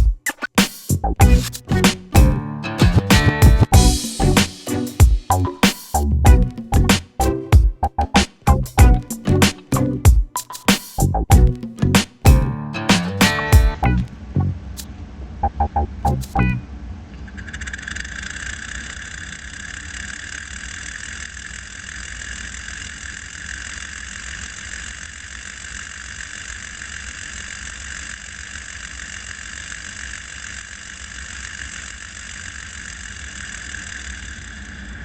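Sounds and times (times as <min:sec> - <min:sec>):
model steam engine whirring: 0:17.5 - 0:35.0.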